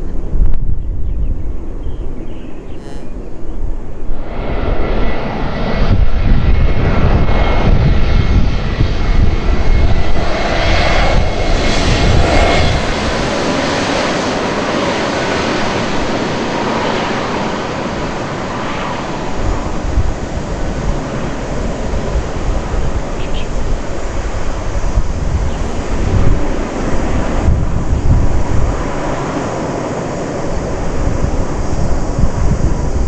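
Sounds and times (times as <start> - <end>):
jet airliner engines passing: 0.0 - 33.0.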